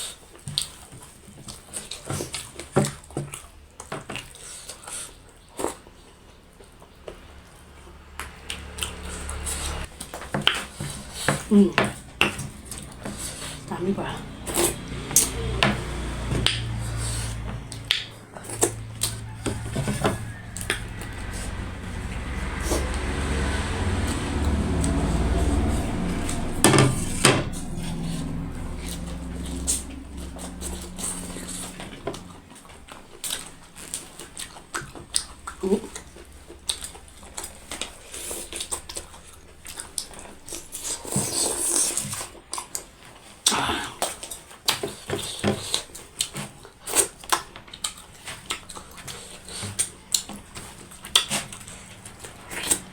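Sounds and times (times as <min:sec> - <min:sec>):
person chewing crunchily: 0:00.0 - 0:52.9
slurping: 0:00.0 - 0:52.9
low hum: 0:07.5 - 0:34.6.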